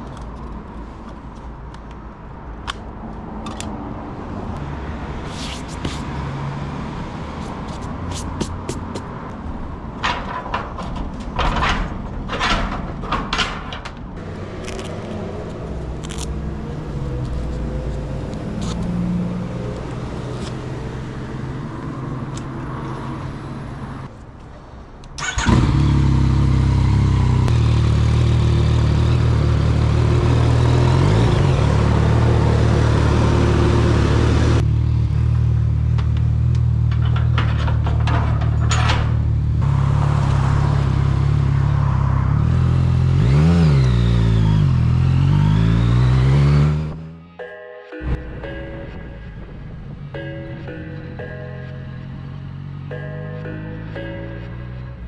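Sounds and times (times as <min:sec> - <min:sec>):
motorcycle engine running: 0:25.4 - 0:36.8.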